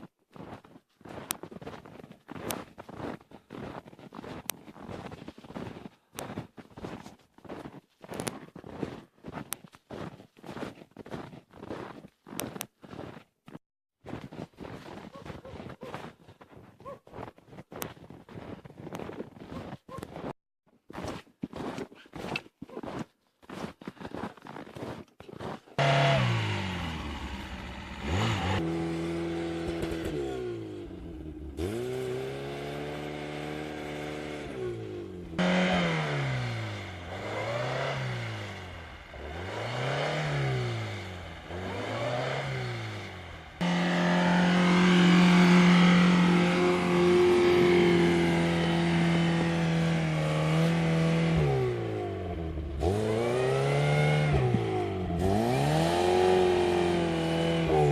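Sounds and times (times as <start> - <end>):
car engine revving: 25.8 - 57.9.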